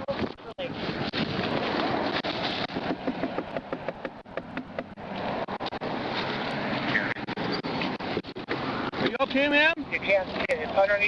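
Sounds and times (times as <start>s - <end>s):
rustling against camera microphone: 0.0s - 11.0s
small knocks: 2.7s - 5.2s.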